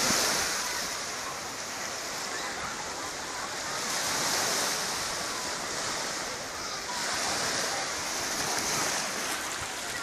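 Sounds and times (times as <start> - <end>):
waves washing onto a beach: 0.0 - 10.0.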